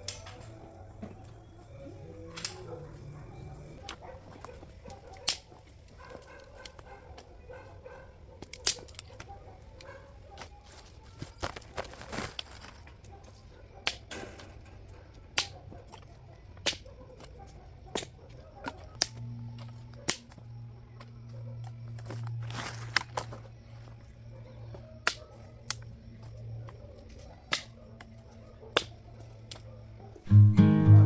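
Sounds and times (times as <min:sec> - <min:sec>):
dry branches snapping: 0:00.0 - 0:00.6, 0:03.8 - 0:06.9, 0:08.4 - 0:13.1, 0:13.8 - 0:14.2, 0:15.3 - 0:17.3, 0:18.0 - 0:20.4, 0:22.0 - 0:23.4, 0:25.0 - 0:25.9, 0:27.0 - 0:29.7.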